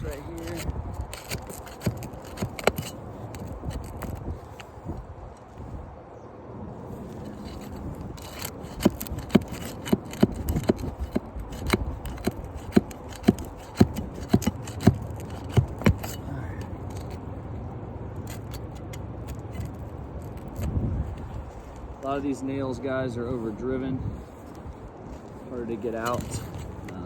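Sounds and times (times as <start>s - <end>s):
metal tool tapping and scraping nails: 0.0s - 4.7s, 7.3s - 17.2s, 18.2s - 21.4s, 25.9s - 27.0s.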